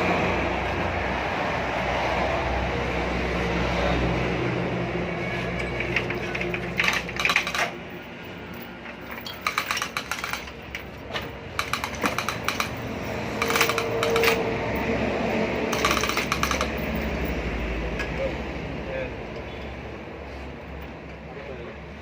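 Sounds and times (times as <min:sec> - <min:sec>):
hand tools clicking on metal: 0:05.6 - 0:07.9, 0:08.9 - 0:14.5, 0:15.6 - 0:17.1.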